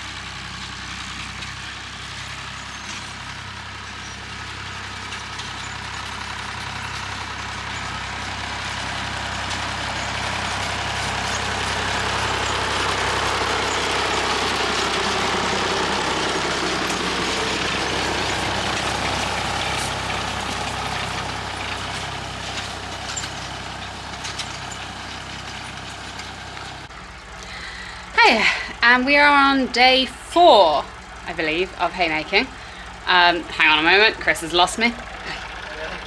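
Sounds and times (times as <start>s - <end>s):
tractor engine running: 0.0s - 36.0s.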